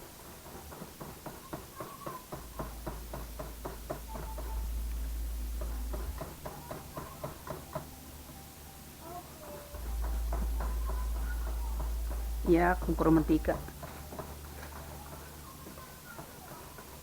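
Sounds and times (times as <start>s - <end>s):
utensil knocking mixing bowl: 0.2s - 4.6s, 9.8s - 17.0s
low rumble: 2.5s - 7.2s, 9.7s - 15.5s.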